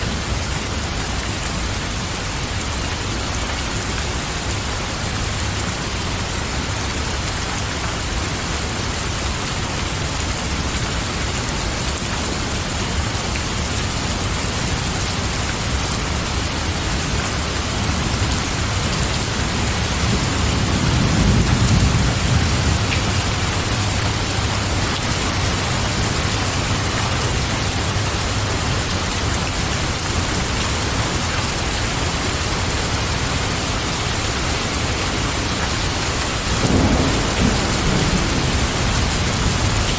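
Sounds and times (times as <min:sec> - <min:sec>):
rain falling: 0:00.0 - 0:39.9
thunder rumble: 0:15.7 - 0:28.0, 0:36.4 - 0:39.9.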